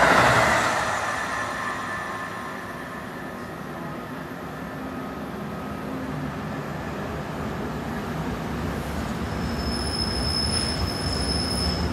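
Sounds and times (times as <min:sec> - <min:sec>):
train rumbling on tracks: 0:00.0 - 0:11.9
high-pitched wheel squeal: 0:09.4 - 0:11.9.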